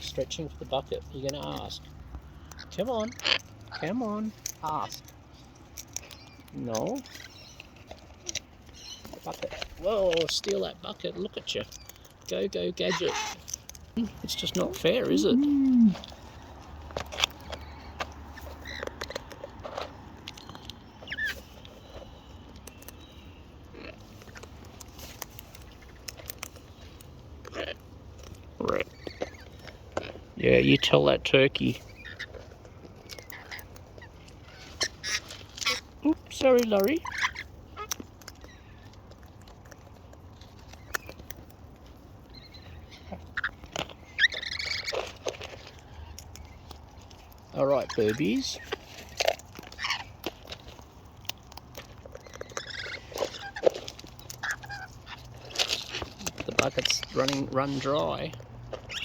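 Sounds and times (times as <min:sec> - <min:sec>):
beaks clicking and tapping: 0:00.0 - 0:59.0
parrot chirps: 0:12.8 - 0:13.4, 0:20.4 - 0:24.0, 0:33.1 - 0:35.9, 0:37.0 - 0:38.8, 0:42.3 - 0:45.0, 0:52.2 - 0:53.6, 0:54.2 - 0:55.5.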